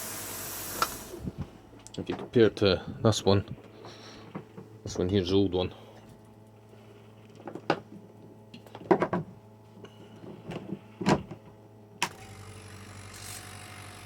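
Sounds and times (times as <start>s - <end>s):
air compressor hissing: 0.0s - 1.3s
low steady hum: 0.0s - 14.0s.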